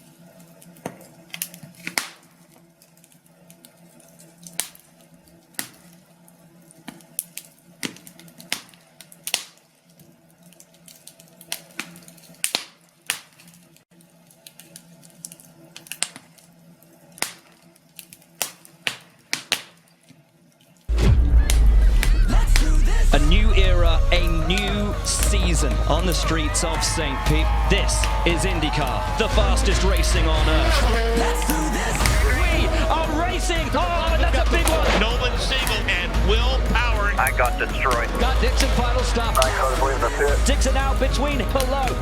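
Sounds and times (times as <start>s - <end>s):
wood fire crackling and popping: 0.2s - 6.0s, 6.7s - 23.4s, 24.1s - 42.0s
loud music: 20.9s - 42.0s.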